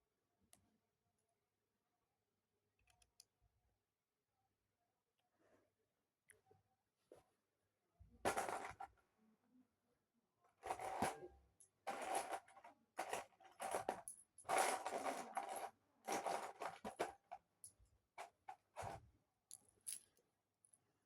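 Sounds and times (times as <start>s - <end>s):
plastic pieces rattling: 11.9s - 17.4s.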